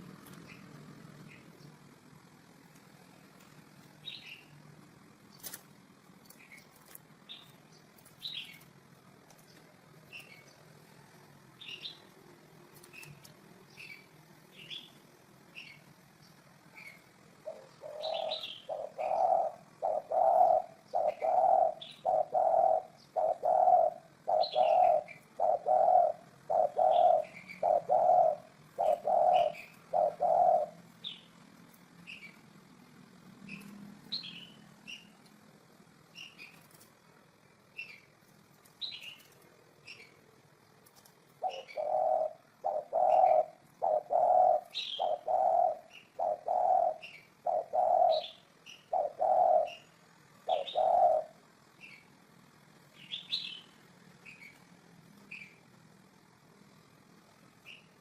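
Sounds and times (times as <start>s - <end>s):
small bird chirping: 0.0s - 35.4s, 36.0s - 55.8s, 57.5s - 58.0s
dove cooing: 16.8s - 31.4s, 41.3s - 52.0s.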